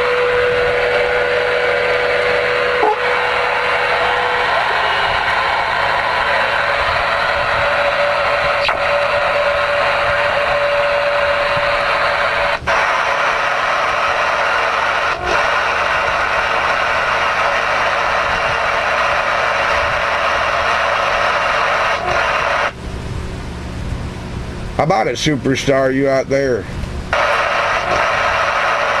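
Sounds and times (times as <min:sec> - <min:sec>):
radio static hiss: 0:02.7 - 0:22.8, 0:27.2 - 0:29.0.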